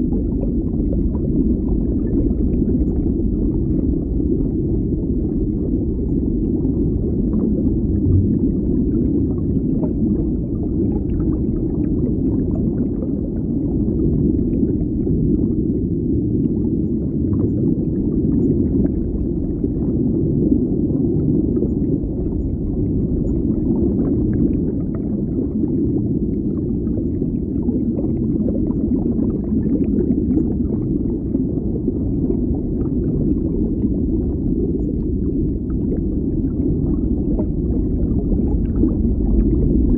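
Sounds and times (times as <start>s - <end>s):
muffled underwater rumble: 0.0s - 39.9s.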